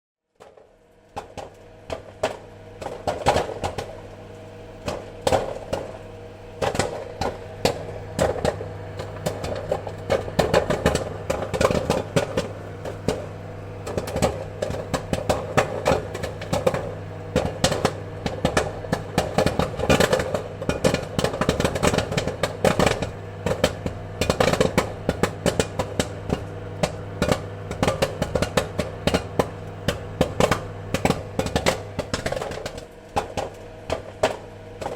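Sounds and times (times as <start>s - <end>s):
popcorn kernels popping: 0.4s - 34.9s
steady low hum: 0.5s - 34.9s.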